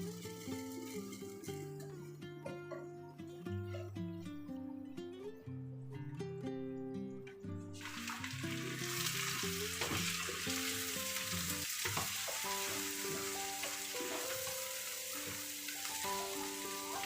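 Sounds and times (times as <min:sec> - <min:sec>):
food sizzling in a pan: 0:00.0 - 0:02.0, 0:07.8 - 0:17.0
soft background music: 0:00.0 - 0:17.0.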